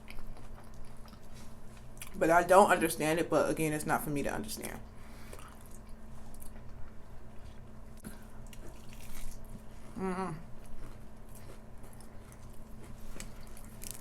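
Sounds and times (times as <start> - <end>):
wet mouth eating sounds: 8.0 - 14.0
person humming: 9.9 - 10.5.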